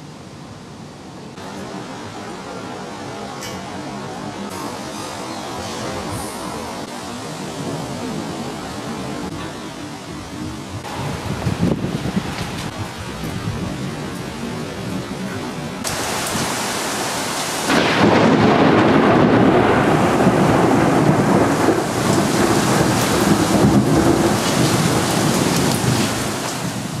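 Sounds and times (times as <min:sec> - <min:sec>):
rain: 0:00.0 - 0:27.0
rolling thunder: 0:10.4 - 0:14.8, 0:15.8 - 0:27.0.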